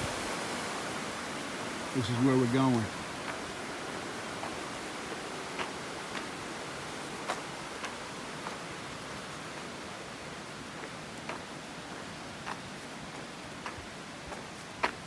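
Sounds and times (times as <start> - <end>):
light rain hissing: 0.0 - 10.8.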